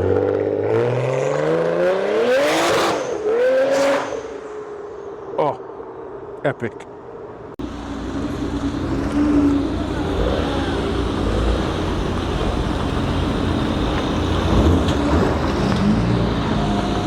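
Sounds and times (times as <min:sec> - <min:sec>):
car engine and exhaust roaring: 0:00.0 - 0:17.0.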